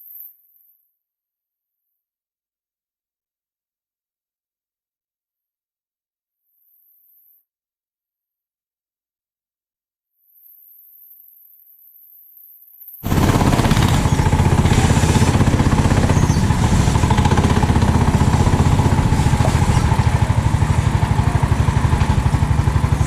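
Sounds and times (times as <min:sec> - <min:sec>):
kart engine running: 0:13.0 - 0:23.0.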